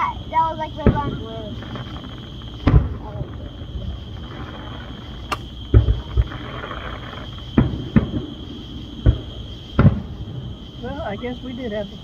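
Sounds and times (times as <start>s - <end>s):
distant fireworks booms: 0.0s - 12.0s.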